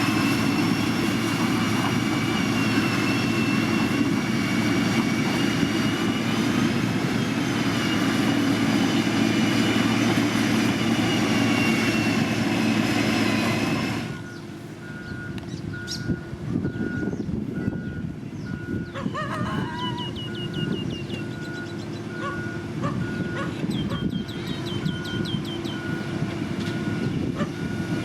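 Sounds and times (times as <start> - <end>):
heavy machine engine rumbling: 0.0 - 28.0.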